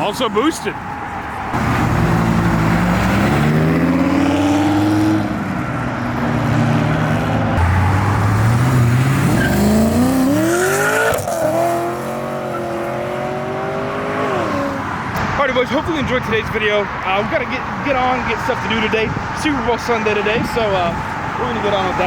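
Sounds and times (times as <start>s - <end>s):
car engine accelerating hard: 1.6s - 15.2s.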